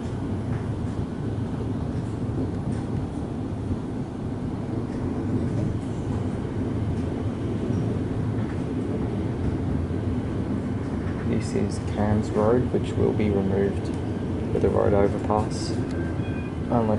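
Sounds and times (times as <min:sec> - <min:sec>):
train rumbling inside carriage: 0:00.0 - 0:16.9.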